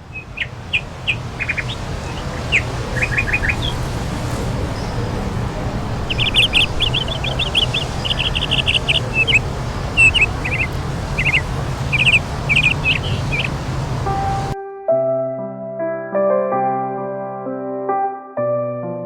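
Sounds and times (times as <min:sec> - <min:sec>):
bird chirping: 0:00.0 - 0:14.6
low background noise: 0:00.0 - 0:14.6
soft music: 0:01.2 - 0:19.0.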